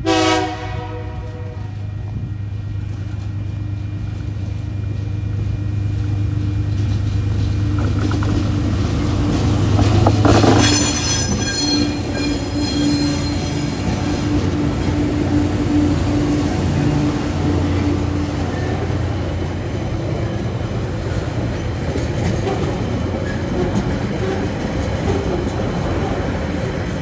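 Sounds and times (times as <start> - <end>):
diesel locomotive engine drone: 0.0 - 27.0
train wheels squealing: 10.3 - 16.9.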